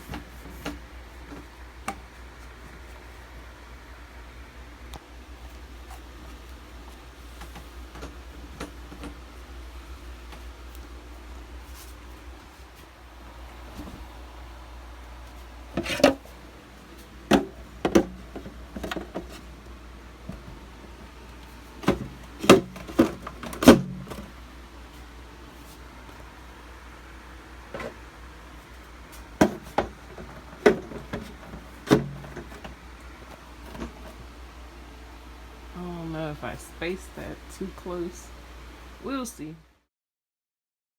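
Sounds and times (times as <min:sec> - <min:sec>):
items knocking in refrigerator: 0:17.3 - 0:19.5, 0:21.8 - 0:24.3, 0:29.3 - 0:32.8.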